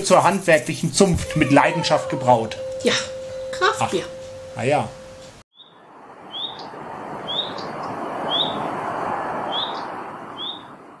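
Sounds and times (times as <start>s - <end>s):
bird rising chirp: 1.2s - 8.7s, 9.5s - 10.8s.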